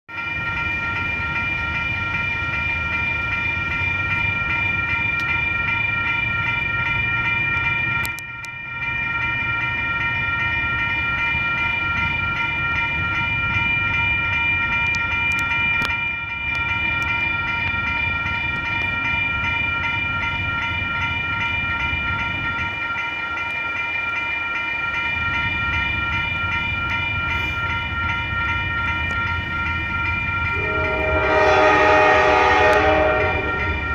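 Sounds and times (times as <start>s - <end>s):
high-pitched ringing tones: 0.2s - 33.9s
freight train rumbling: 0.3s - 33.9s
locomotive horn: 30.5s - 33.9s.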